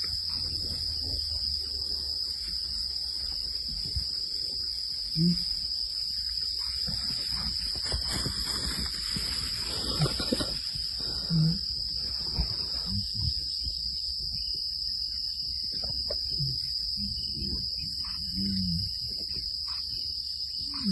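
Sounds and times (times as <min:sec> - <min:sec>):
crickets chirping: 0:00.0 - 0:20.9
low animal grunts: 0:09.7 - 0:13.4.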